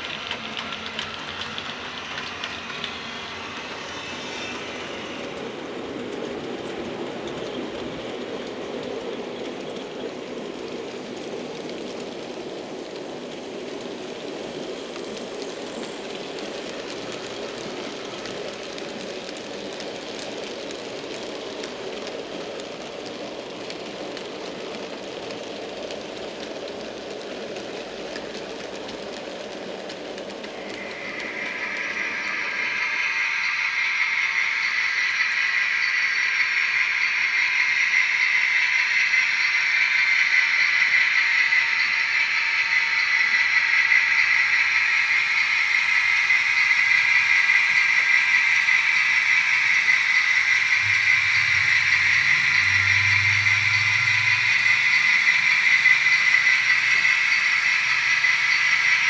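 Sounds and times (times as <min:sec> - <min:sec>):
model train whirring on track: 0:00.0 - 0:59.0.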